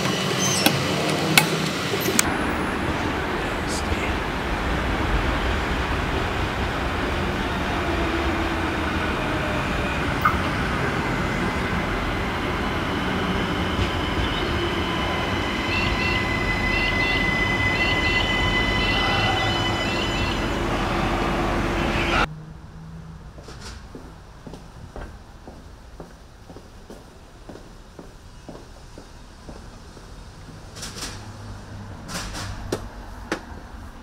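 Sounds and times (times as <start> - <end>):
railcar engine and wheels rumbling: 0.0 - 34.0
thin high tones: 12.6 - 22.3.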